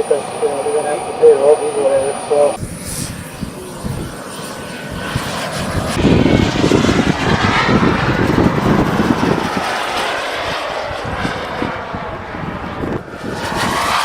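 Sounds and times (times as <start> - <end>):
model jet engine flying past: 1.7 - 14.0.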